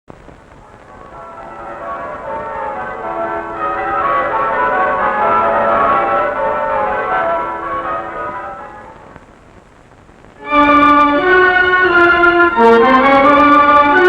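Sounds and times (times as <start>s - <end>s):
bells ringing: 0.6s - 9.2s
soundtrack music with held notes: 0.6s - 9.2s, 10.4s - 14.0s.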